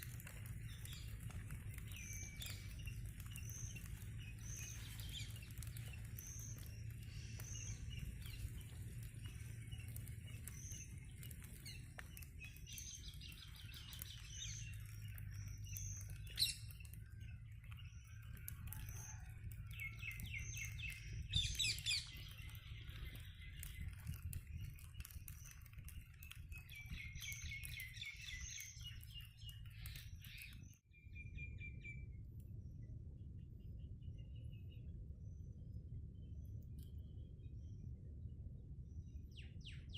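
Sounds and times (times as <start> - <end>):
birds chirping and singing: 0.0 - 32.0
low steady hum: 30.9 - 39.9.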